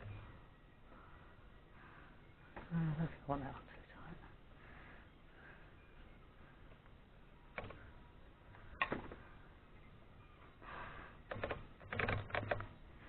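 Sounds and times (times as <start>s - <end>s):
typewriter parts clicking and knocking: 11.3s - 12.7s.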